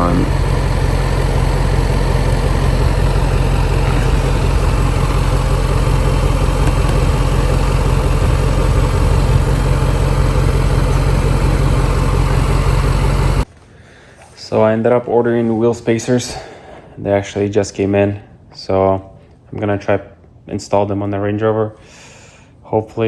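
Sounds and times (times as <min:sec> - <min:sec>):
car engine droning: 0:00.0 - 0:13.5.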